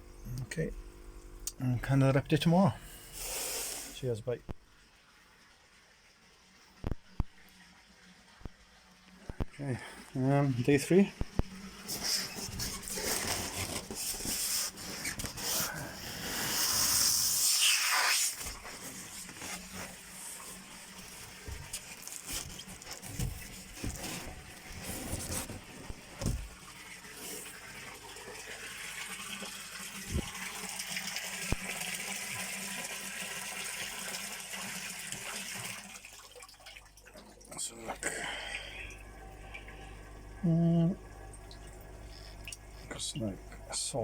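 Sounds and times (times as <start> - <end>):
water splashing and trickling: 26.2 - 38.7.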